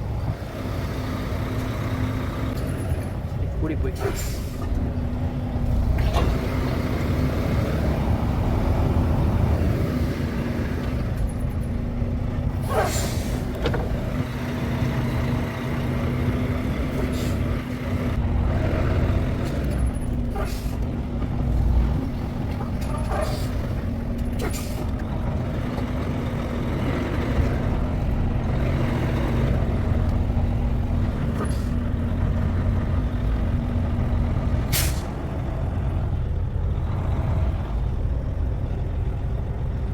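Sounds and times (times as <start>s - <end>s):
diesel truck engine running: 0.0s - 39.9s
air brake hisses: 12.7s - 13.5s, 34.7s - 35.1s.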